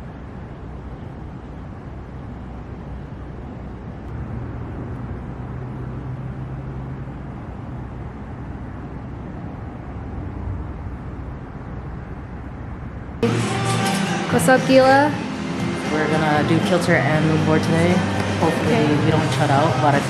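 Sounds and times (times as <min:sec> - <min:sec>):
low rumble of traffic: 0:00.0 - 0:20.0
vehicle engine hum: 0:00.0 - 0:20.0.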